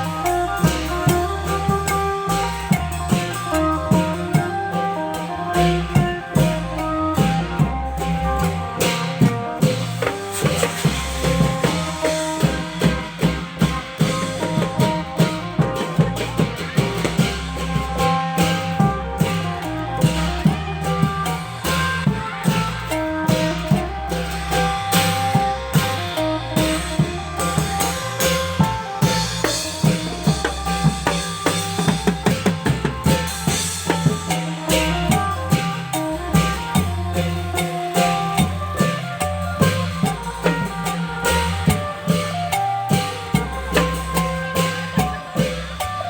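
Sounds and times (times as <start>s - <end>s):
long-drum band playing: 0.0s - 46.0s.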